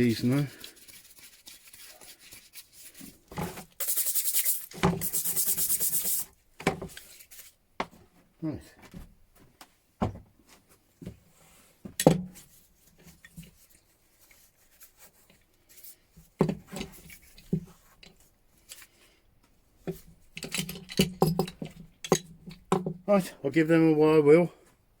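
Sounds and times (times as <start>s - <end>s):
metal wrenches clinking: 20.3s - 22.6s.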